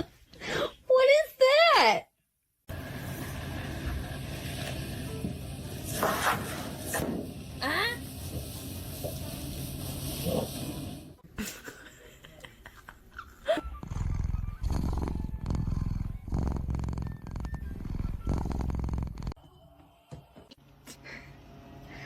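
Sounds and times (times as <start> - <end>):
cat purring loudly: 13.8 - 19.4.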